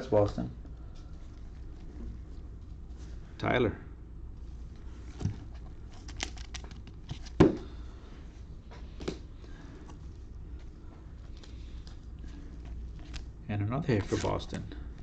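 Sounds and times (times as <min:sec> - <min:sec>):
trading cards rustling: 0:04.8 - 0:07.5, 0:11.2 - 0:13.3, 0:13.9 - 0:14.6.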